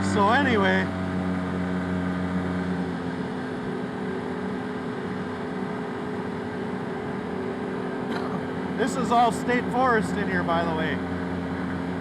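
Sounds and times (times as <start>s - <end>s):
utility vehicle engine running: 0.0s - 12.0s.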